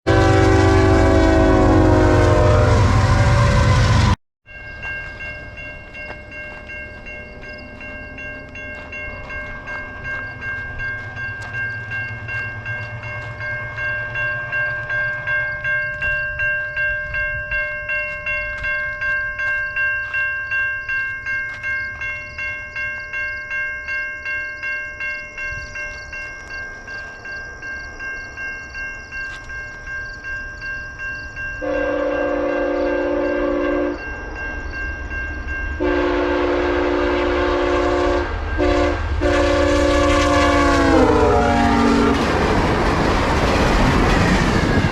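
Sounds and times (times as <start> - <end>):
train horn blast: 0.0 - 4.2, 31.6 - 34.1, 35.8 - 42.6
train rumble: 0.1 - 44.9
level-crossing bell ringing: 4.5 - 38.9.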